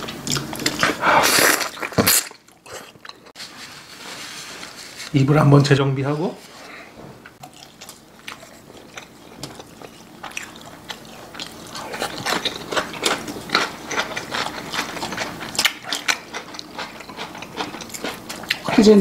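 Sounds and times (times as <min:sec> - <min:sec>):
wet chewing and lip-smacking: 0:07.4 - 0:18.8.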